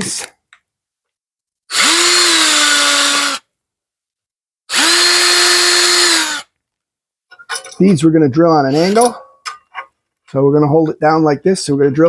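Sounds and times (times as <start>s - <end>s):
electric drill whirring: 1.7s - 3.5s, 4.7s - 6.5s.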